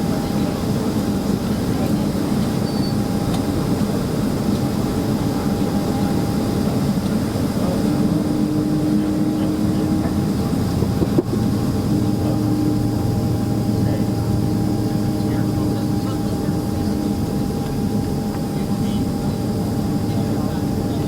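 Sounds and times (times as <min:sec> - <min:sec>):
airliner cabin engine hum: 0:00.0 - 0:21.0.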